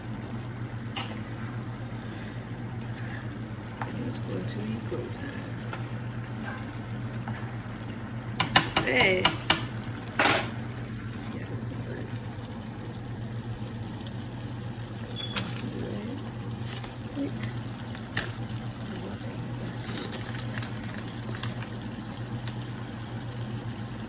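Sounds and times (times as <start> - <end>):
food sizzling in a pan: 0.0 - 24.0
steady low hum: 0.0 - 24.0
utensil clicking against pan: 8.3 - 9.7.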